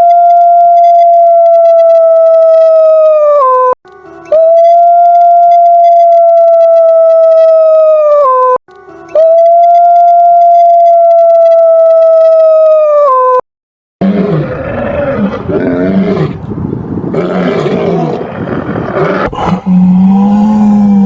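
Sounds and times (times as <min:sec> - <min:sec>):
dog howling: 0:01.2 - 0:08.5, 0:09.2 - 0:13.4.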